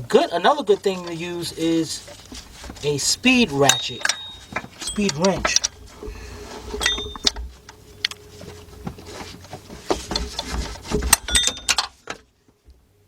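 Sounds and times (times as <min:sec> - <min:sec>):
metallic clinks of tool on metal: 0:03.6 - 0:05.8, 0:06.8 - 0:07.4, 0:11.2 - 0:11.9.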